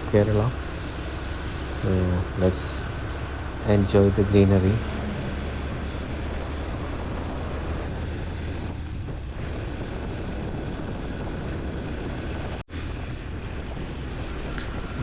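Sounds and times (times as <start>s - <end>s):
motorcycle engine: 0.0s - 7.9s, 14.1s - 15.0s
wind rushing over microphone: 0.0s - 15.0s.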